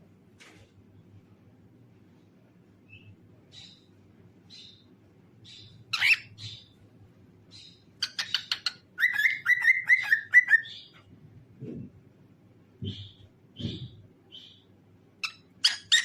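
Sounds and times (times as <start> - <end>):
cockatiel chirping and whistling: 5.6 - 6.7, 8.0 - 10.9.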